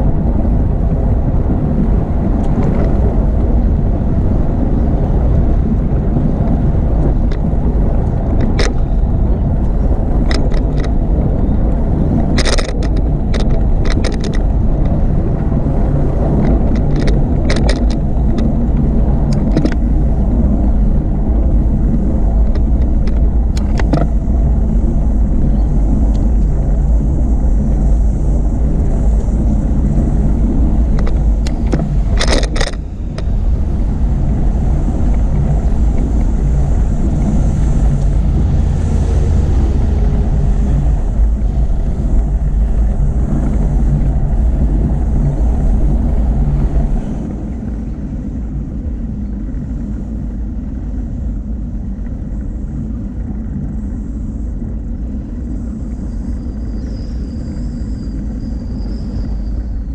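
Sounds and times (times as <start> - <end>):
wind buffeting microphone: 0.0 - 59.9
rattle of clicks: 7.0 - 9.0, 9.6 - 15.1, 16.4 - 20.0, 22.4 - 24.2, 30.8 - 38.2.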